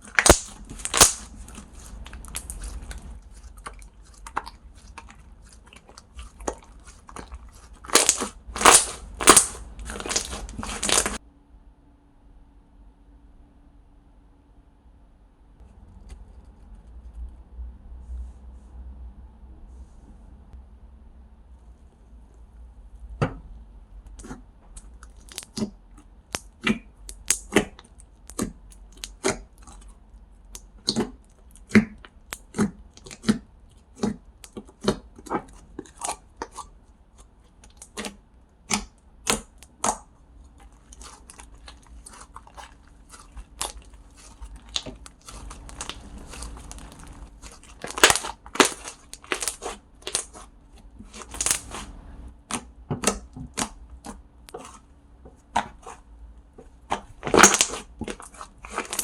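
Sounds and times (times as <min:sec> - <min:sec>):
slime squished with clicking pops: 0:00.0 - 0:01.4, 0:07.9 - 0:11.2, 0:26.3 - 0:29.5, 0:37.6 - 0:40.1, 0:43.6 - 0:50.4, 0:52.4 - 0:54.8, 0:56.9 - 0:59.0
faint steady hum: 0:00.0 - 0:59.0.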